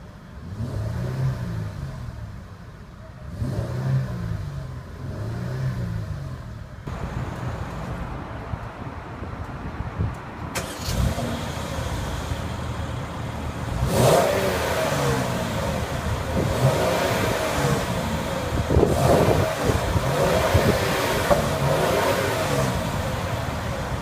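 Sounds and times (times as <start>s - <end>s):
car engine revving: 0.4s - 2.4s, 3.3s - 8.1s, 10.6s - 24.0s.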